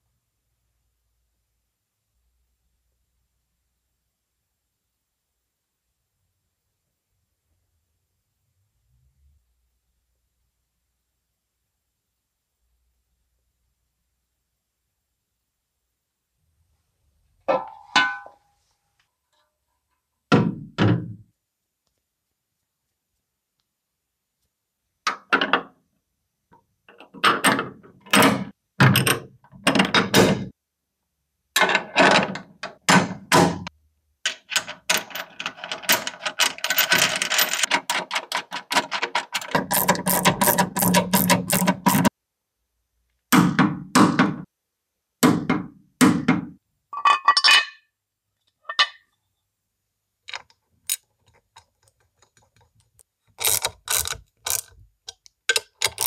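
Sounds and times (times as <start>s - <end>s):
metal parts and tools clunking: 34.6s - 42.1s, 50.3s - 56.0s
clattering and scraping: 50.3s - 56.0s.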